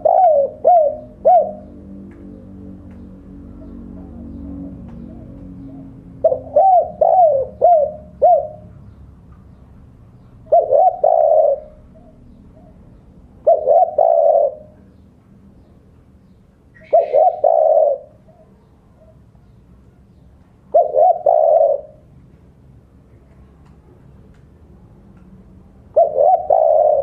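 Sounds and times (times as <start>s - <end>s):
dove cooing: 0.0s - 8.9s, 10.4s - 14.9s, 16.7s - 19.2s, 20.7s - 22.1s, 25.9s - 27.0s.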